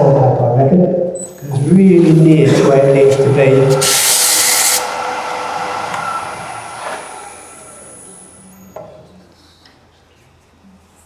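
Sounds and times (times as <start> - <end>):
wood lathe running down: 2.0 - 8.9
sandpaper hissing on spinning wood: 2.9 - 8.4.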